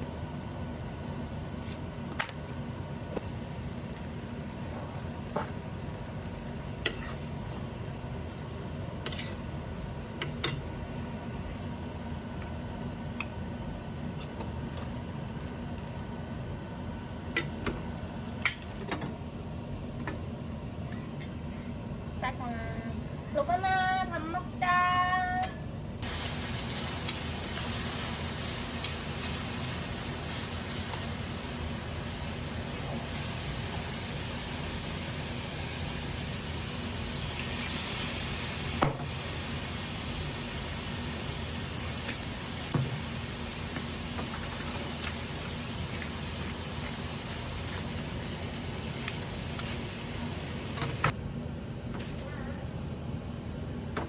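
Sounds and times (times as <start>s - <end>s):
food sizzling in a pan: 3.2s - 7.6s, 26.0s - 51.2s.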